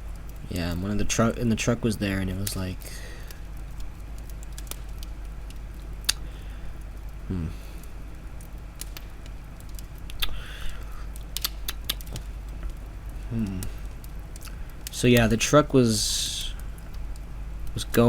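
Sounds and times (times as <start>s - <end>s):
steady low hum: 0.0s - 18.0s
small clicks: 3.2s - 7.1s, 8.4s - 15.3s
brief vocal murmur: 7.3s - 7.6s.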